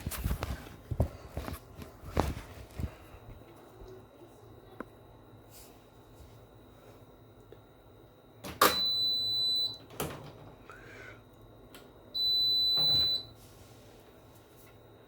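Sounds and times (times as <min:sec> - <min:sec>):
washing machine beeps: 0:04.4 - 0:15.0.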